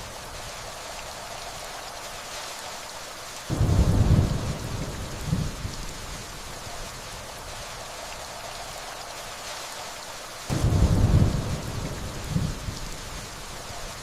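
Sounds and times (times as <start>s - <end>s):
steady rainfall: 0.0s - 14.0s
thunder rumbling: 3.5s - 8.4s, 10.5s - 14.0s.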